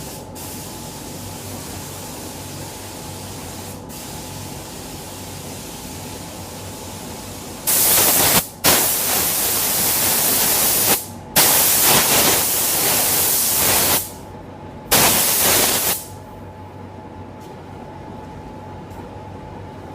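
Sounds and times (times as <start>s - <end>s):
paint spray gun hissing: 7.7s - 14.2s, 14.9s - 16.1s.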